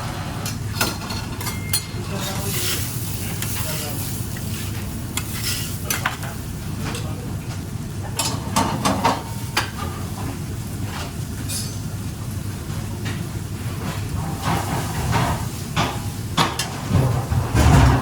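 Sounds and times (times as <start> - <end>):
food sizzling in a frying pan: 1.9 - 6.9, 7.8 - 16.4
utensil scraping a pan: 14.2 - 15.9.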